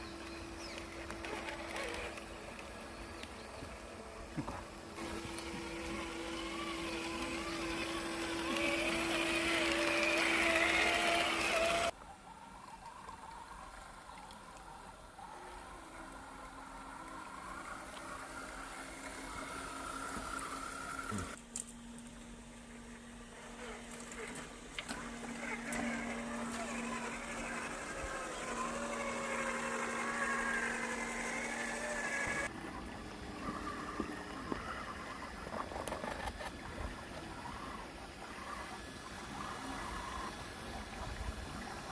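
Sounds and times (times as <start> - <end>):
toy truck electric motor whining: 0.0 - 12.0, 15.3 - 21.4, 23.3 - 32.5
quieter motor whine: 0.0 - 41.9.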